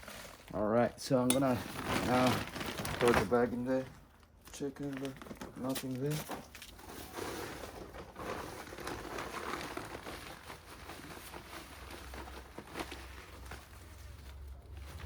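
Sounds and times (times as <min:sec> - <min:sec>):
bag rustling and crinkling: 0:00.0 - 0:15.0.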